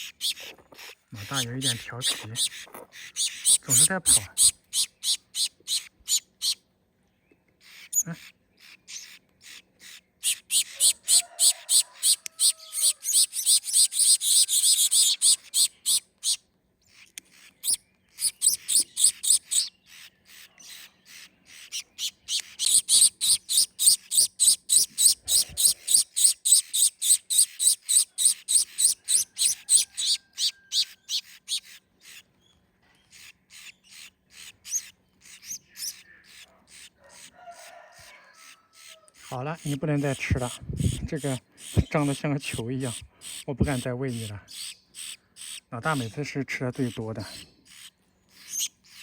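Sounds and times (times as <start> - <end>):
finch chicks begging chirps: 0.0 - 6.7, 7.3 - 49.0.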